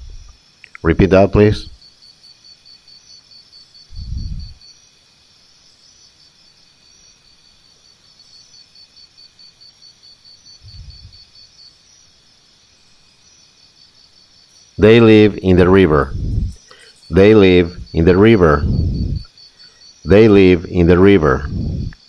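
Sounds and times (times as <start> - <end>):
high-pitched insect chirping: 0.0 - 22.0
dull low thumps: 3.9 - 4.6, 10.6 - 11.2, 15.6 - 16.6, 17.7 - 19.3, 21.4 - 22.0.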